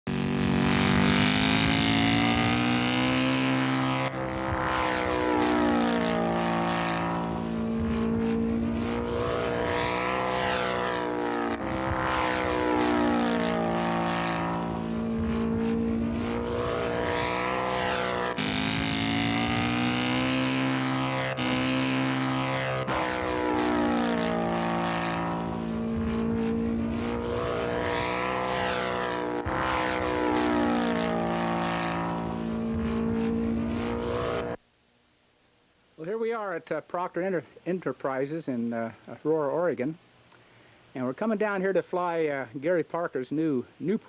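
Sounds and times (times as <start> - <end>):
model airplane engine passing: 0.1 - 34.6.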